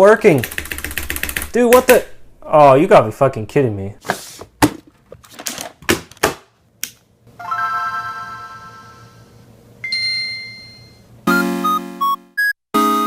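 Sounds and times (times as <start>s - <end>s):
bell-like synth chord: 7.4s - 9.3s
high synth chime: 7.4s - 13.0s.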